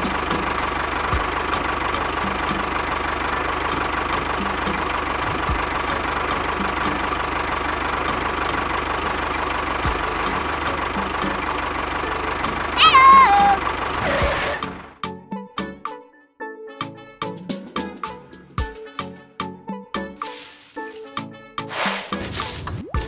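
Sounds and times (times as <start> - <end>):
tractor engine knocking: 0.0 - 15.0.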